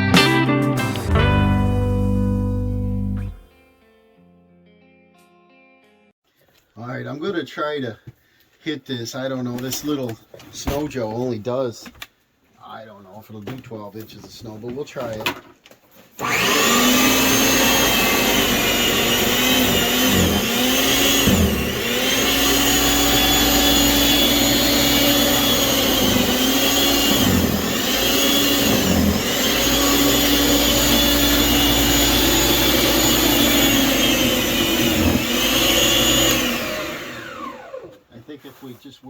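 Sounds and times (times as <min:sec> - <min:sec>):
electric snow thrower motor whine: 0:16.2 - 0:38.0.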